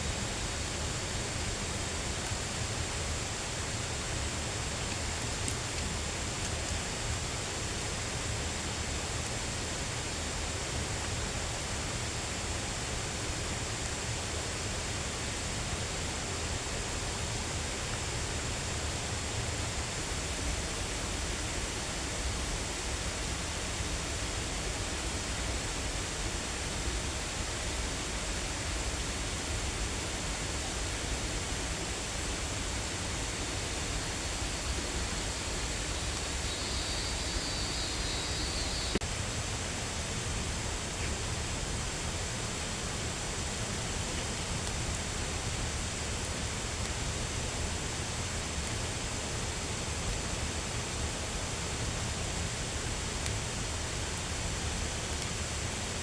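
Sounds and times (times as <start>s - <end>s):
faint high steady tone: 34.4s - 39.0s.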